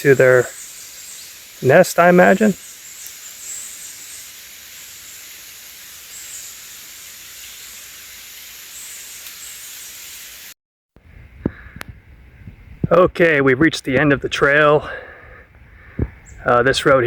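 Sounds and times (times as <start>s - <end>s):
high-pitched insect hiss: 0.0s - 10.5s.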